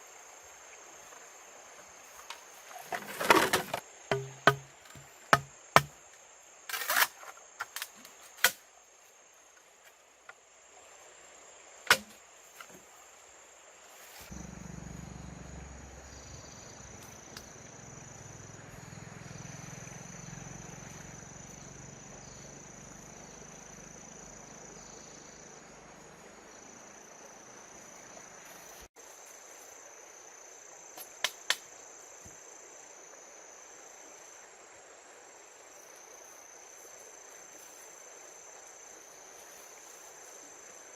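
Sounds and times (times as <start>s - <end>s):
crickets chirring: 0.0s - 40.9s
sharp knocks: 4.1s - 5.9s.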